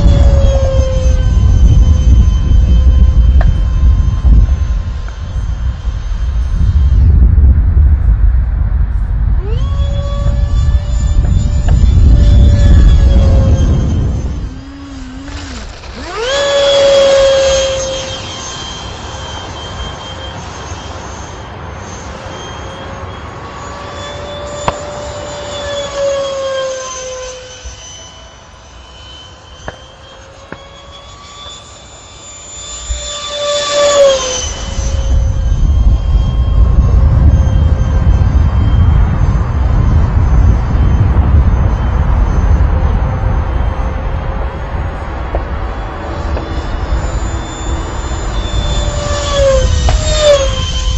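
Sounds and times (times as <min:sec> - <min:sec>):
loud low rumble: 0:00.0 - 0:16.3
model jet fan whine: 0:00.0 - 0:50.9.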